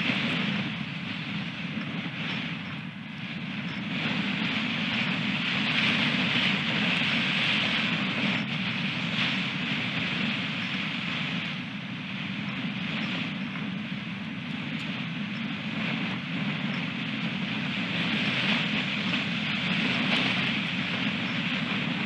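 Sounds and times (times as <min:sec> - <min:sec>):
strong wind gusts on microphone: 0:00.0 - 0:22.0.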